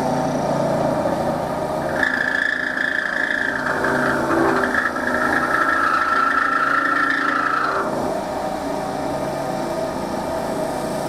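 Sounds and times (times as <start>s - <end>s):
wood lathe humming: 1.4s - 9.8s
cloth rubbing spinning wood: 1.8s - 8.4s.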